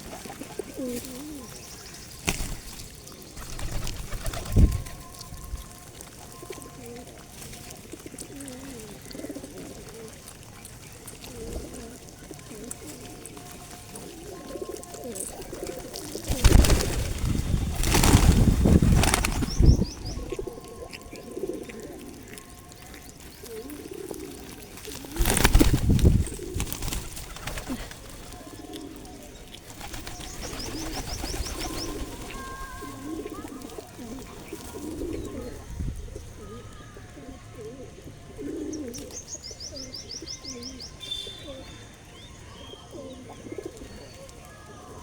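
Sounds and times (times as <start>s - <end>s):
pigeons cooing: 0.0s - 1.8s, 2.4s - 41.7s, 42.7s - 45.0s
small birds chirping: 0.5s - 45.0s
wings flapping: 2.2s - 5.2s, 15.6s - 20.4s, 24.8s - 28.9s, 29.6s - 35.0s.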